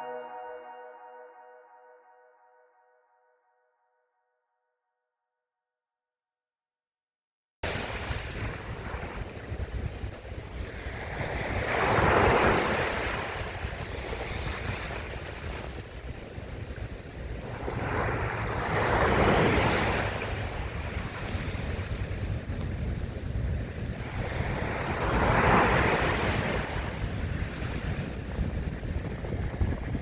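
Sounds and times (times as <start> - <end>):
waves breaking: 7.7 - 30.0
wind rumble on microphone: 7.7 - 30.0.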